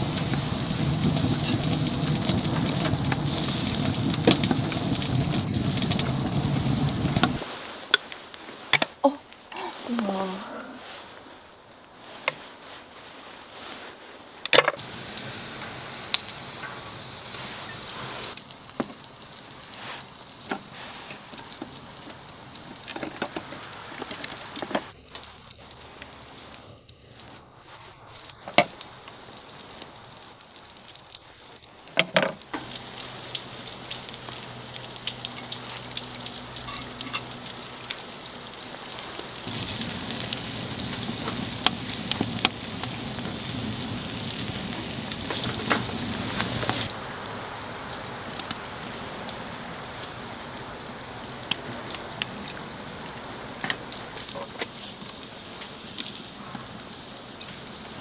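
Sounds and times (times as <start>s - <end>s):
food sizzling in a pan: 0.0s - 14.1s, 14.8s - 58.0s
utensils clicking and knocking: 36.6s - 37.4s.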